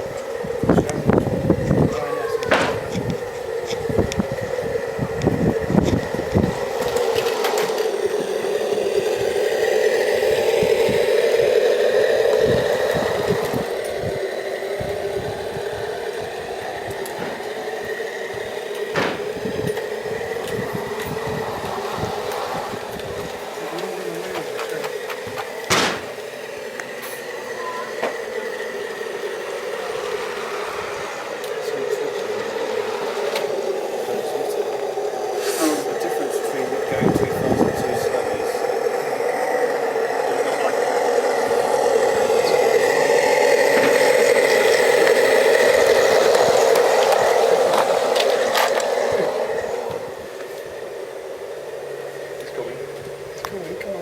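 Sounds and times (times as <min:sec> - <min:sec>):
model steam train running: 0:00.0 - 0:54.0
sharp knock: 0:25.7 - 0:26.1.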